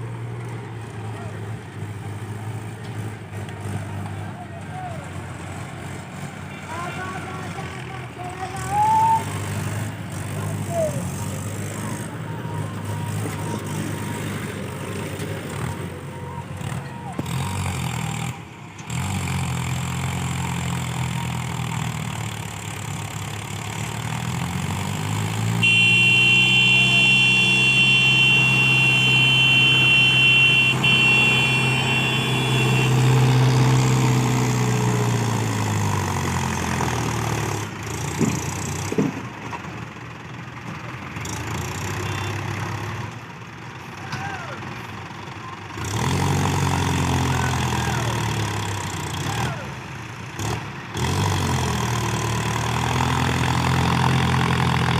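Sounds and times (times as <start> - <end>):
tractor engine revving: 0.0 - 54.9
continuous horn: 25.5 - 33.8.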